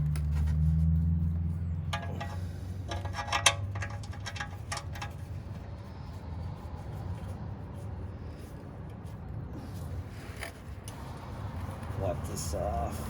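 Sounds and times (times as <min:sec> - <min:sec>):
metal parts clinking: 0:01.9 - 0:05.2.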